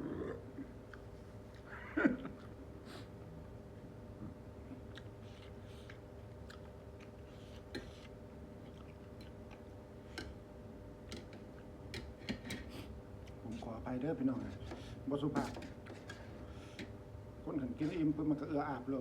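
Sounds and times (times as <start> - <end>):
faint steady hum: 0.0 - 19.0
person chewing food: 0.5 - 2.6, 4.2 - 13.4.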